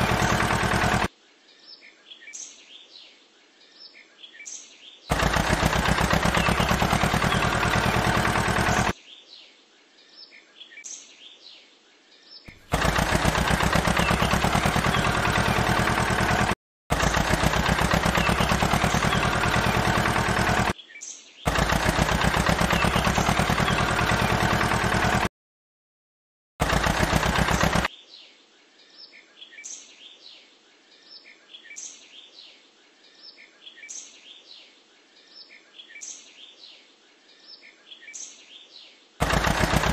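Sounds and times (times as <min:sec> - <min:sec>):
rapid mechanical rattle: 0:00.0 - 0:01.1, 0:05.1 - 0:09.0, 0:12.5 - 0:20.8, 0:21.5 - 0:25.3, 0:26.6 - 0:27.9, 0:39.2 - 0:39.9
birds chirping: 0:00.0 - 0:02.9, 0:03.8 - 0:09.3, 0:12.3 - 0:25.2, 0:26.6 - 0:27.9.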